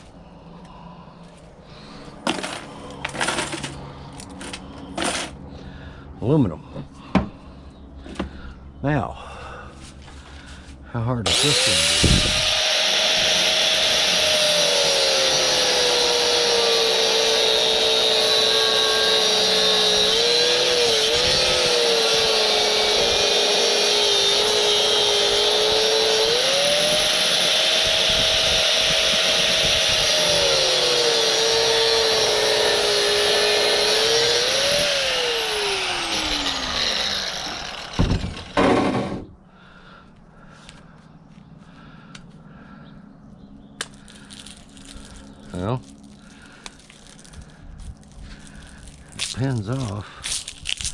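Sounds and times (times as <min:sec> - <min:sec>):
power tool motor cutting: 0:11.2 - 0:39.2.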